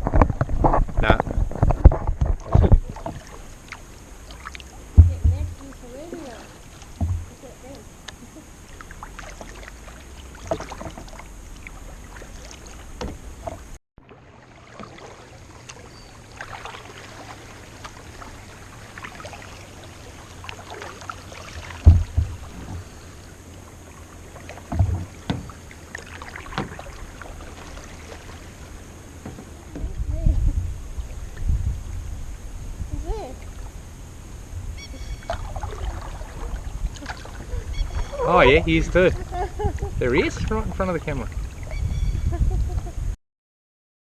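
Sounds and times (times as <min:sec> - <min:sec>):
paddle splashing in water: 0:00.0 - 0:42.2
dull knocks: 0:04.9 - 0:06.3, 0:06.9 - 0:07.4, 0:13.0 - 0:13.6, 0:21.6 - 0:22.9, 0:24.6 - 0:25.6, 0:29.2 - 0:30.0.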